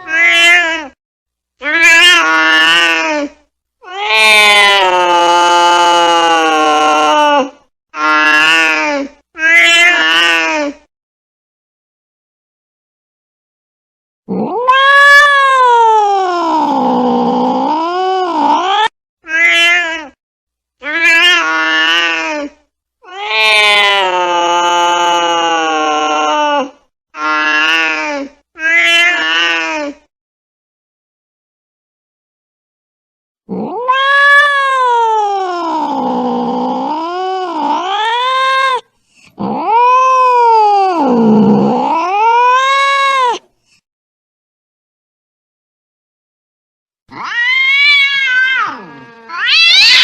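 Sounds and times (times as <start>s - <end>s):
angry cat yowling: 0.0s - 1.0s, 1.6s - 3.1s, 3.8s - 8.8s, 14.3s - 20.2s, 20.8s - 22.3s, 23.0s - 28.0s, 28.6s - 29.7s, 33.5s - 43.5s, 47.1s - 50.0s.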